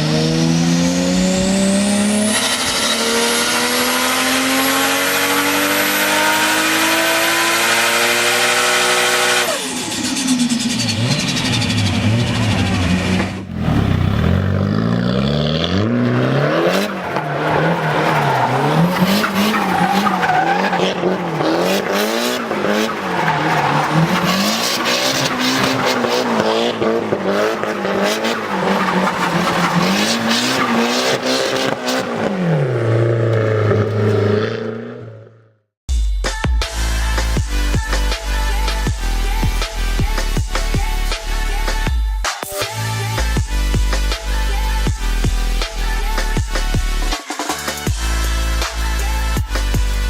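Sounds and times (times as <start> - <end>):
car engine revving: 0.0 - 35.6
tyres squealing: 16.6 - 32.0.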